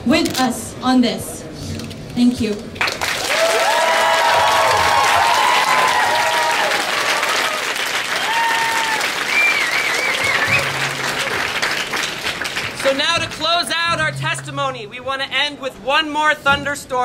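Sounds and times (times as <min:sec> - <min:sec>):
crowd applauding: 0:02.8 - 0:13.4
whoops: 0:03.2 - 0:11.4.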